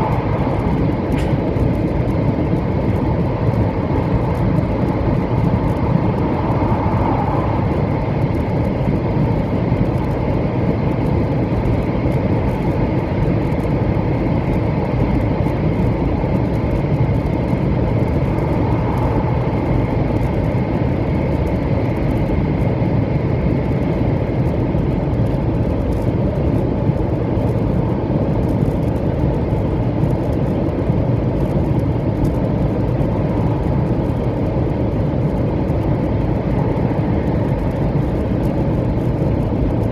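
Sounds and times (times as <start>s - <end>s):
faint high whine: 0.0s - 2.0s
rumble of train wheels on rail: 0.0s - 39.9s.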